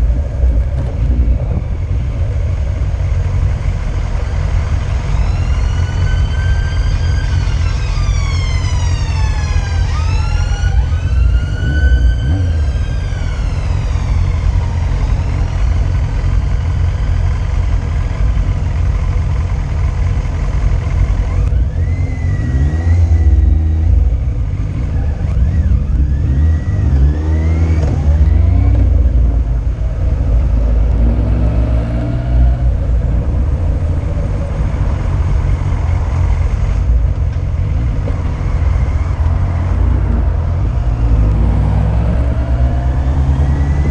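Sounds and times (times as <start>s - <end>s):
wind rumble on microphone: 0.0s - 16.6s, 32.0s - 43.9s
motorcycle engine revving: 0.0s - 43.9s
siren: 4.2s - 17.3s, 21.3s - 29.8s.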